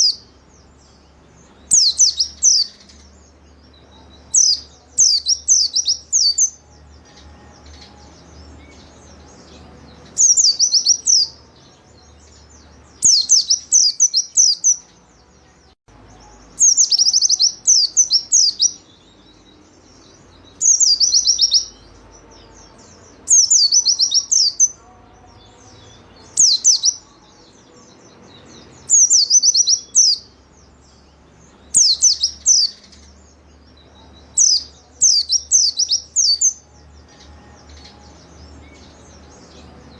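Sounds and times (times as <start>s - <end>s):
bird chirping rapidly: 0.0s - 6.6s, 12.4s - 14.9s, 16.2s - 24.8s, 25.9s - 27.1s, 28.8s - 30.4s, 31.0s - 33.1s, 34.3s - 36.6s
faint low hum: 0.0s - 39.9s.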